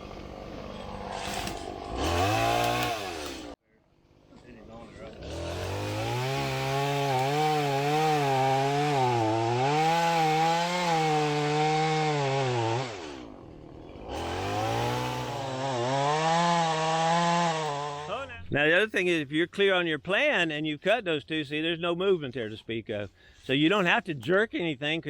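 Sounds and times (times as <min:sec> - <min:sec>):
chainsaw cutting wood: 0:00.0 - 0:03.6, 0:05.0 - 0:18.2.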